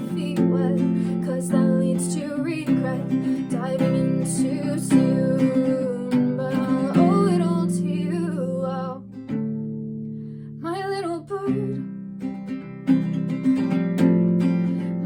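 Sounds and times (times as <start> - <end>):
person singing: 0.0 - 9.4, 10.6 - 11.9.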